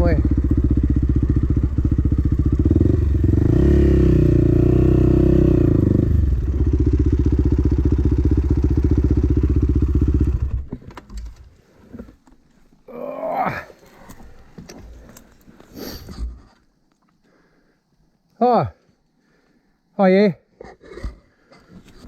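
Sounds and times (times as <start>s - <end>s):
dirt bike engine running: 0.0s - 11.4s.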